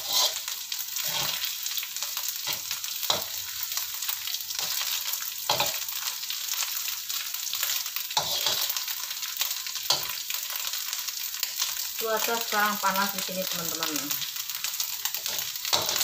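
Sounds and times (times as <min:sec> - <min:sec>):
metal spatula scraping a wok: 0:00.0 - 0:01.6, 0:02.4 - 0:03.4, 0:04.6 - 0:06.0, 0:07.6 - 0:08.9, 0:15.1 - 0:16.0
anchovies sizzling in oil: 0:00.0 - 0:16.0.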